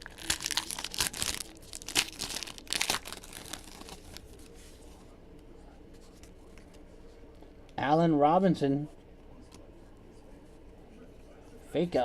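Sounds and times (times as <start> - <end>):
card pack wrapper tearing: 0.0 - 4.2.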